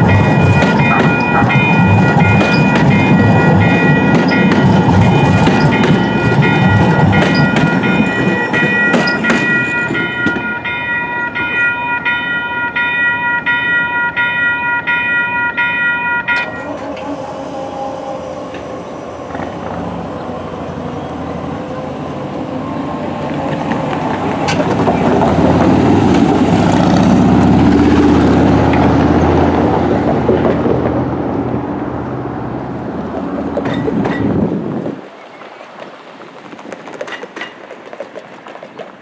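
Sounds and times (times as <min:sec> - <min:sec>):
railroad crossing bell ringing: 0:00.0 - 0:17.2
train rumbling past: 0:00.0 - 0:39.0.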